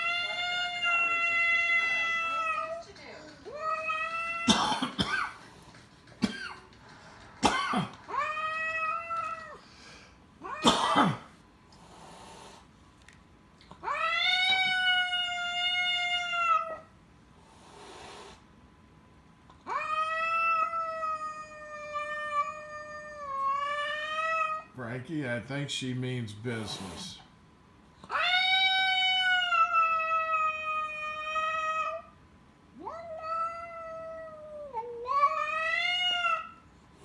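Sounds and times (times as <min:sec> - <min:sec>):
cat yowling: 0:00.0 - 0:02.9, 0:03.5 - 0:04.6, 0:08.0 - 0:09.6, 0:10.4 - 0:10.8, 0:13.8 - 0:16.9, 0:19.6 - 0:24.7, 0:28.0 - 0:32.2, 0:32.8 - 0:36.6
cat hissing and spitting: 0:11.7 - 0:12.8, 0:17.4 - 0:18.5.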